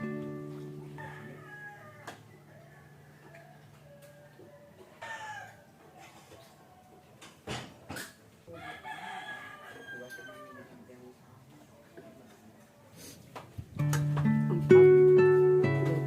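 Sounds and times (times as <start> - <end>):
rooster crowing: 0.8 - 5.8, 8.5 - 10.8.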